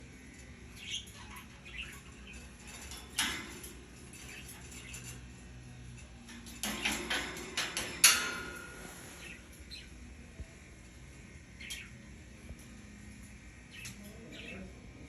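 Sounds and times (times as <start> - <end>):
parrot squeaks: 0.9 - 2.5.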